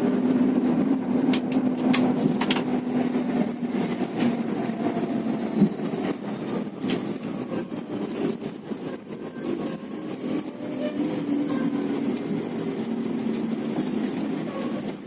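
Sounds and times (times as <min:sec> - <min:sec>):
bus engine drone: 0:00.0 - 0:15.0
road noise: 0:00.0 - 0:15.0.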